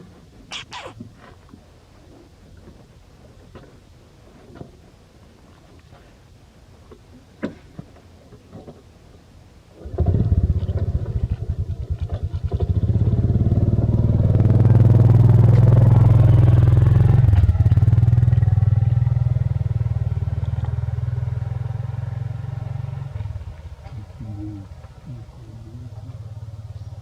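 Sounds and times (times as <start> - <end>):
motorcycle engine revving: 9.8 - 25.1, 25.9 - 27.0.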